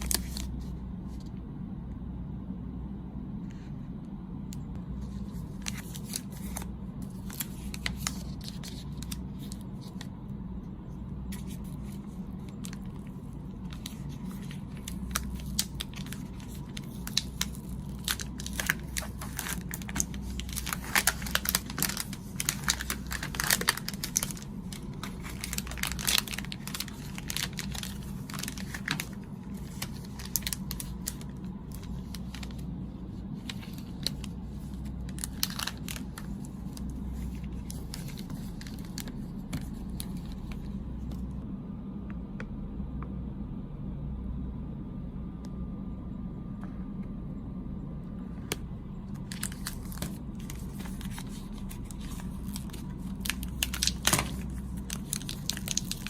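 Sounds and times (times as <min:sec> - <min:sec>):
plastic packaging crinkling: 0:00.0 - 0:00.6, 0:05.0 - 0:10.2, 0:11.3 - 0:41.3, 0:49.1 - 0:56.0
steady low hum: 0:00.0 - 0:56.0.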